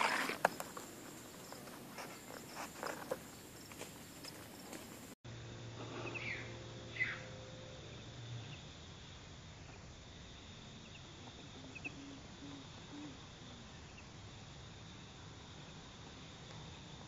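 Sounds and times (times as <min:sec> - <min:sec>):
faint high-pitched drone: 0:05.3 - 0:15.8
small bird chirping: 0:05.8 - 0:07.3, 0:10.8 - 0:14.1.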